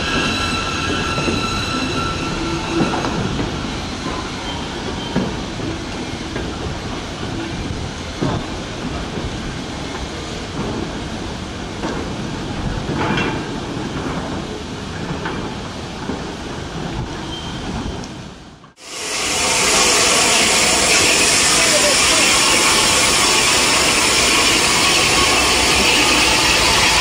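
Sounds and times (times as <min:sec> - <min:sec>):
wagons rumbling on rails: 0:00.0 - 0:27.0
steam hissing: 0:18.8 - 0:27.0.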